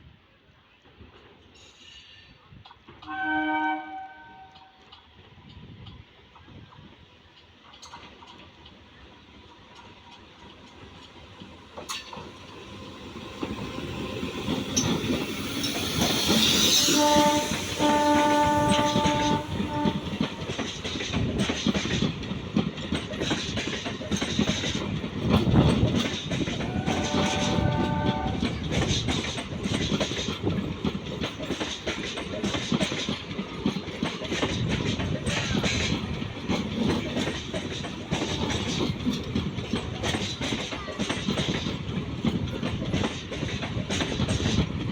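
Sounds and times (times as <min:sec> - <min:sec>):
train horn: 0:03.0 - 0:04.9, 0:16.5 - 0:20.6, 0:26.6 - 0:28.6
train wheels clattering: 0:04.4 - 0:44.9.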